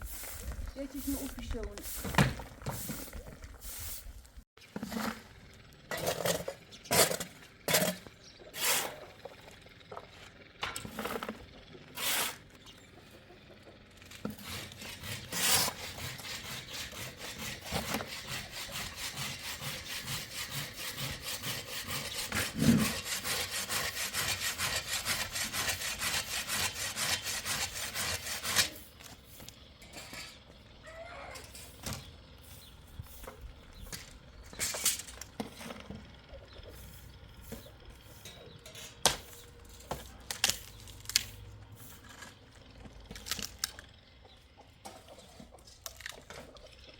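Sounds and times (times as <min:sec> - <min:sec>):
hand saw cutting wood: 0:05.9 - 0:09.1, 0:10.8 - 0:12.4, 0:14.1 - 0:29.0.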